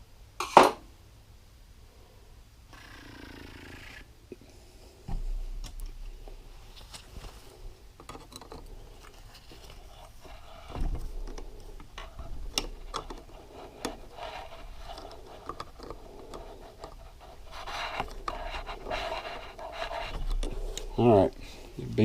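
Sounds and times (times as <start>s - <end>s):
dull thump: 5.1s - 5.7s, 10.7s - 11.3s
screwdriver clicking and scraping metal: 8.0s - 20.9s.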